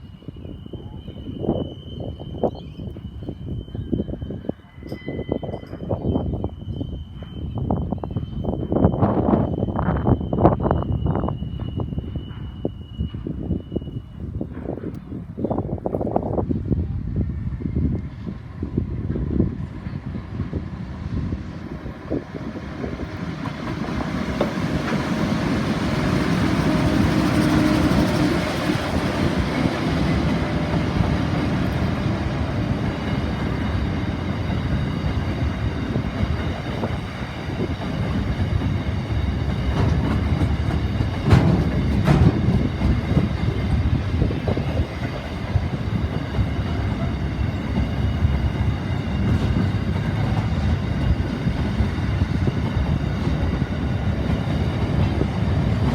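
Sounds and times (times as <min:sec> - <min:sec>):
train wheels rumbling on rail: 0:00.0 - 0:55.9.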